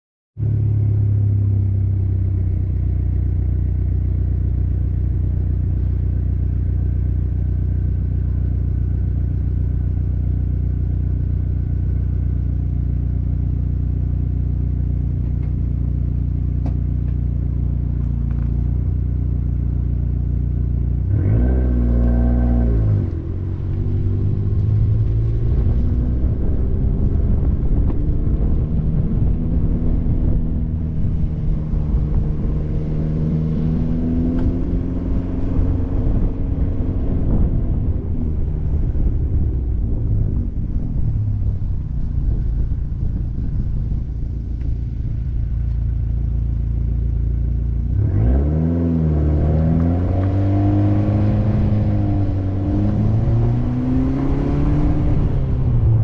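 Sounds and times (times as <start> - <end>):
car engine idling: 0.4 - 21.4, 23.1 - 48.0
car engine revving: 0.4 - 56.0
tyre and wind noise: 22.2 - 46.3.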